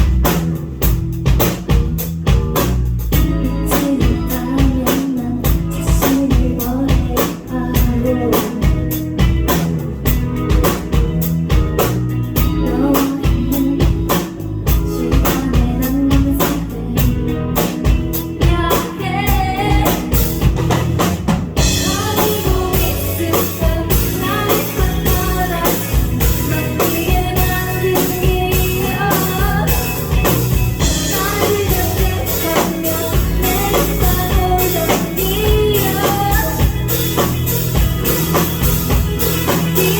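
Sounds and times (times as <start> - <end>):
drum kit beat: 0.0 - 39.9
electric bass: 0.0 - 39.9
electric guitar: 0.0 - 39.9
person singing: 3.2 - 9.2, 12.4 - 20.4, 21.6 - 37.3.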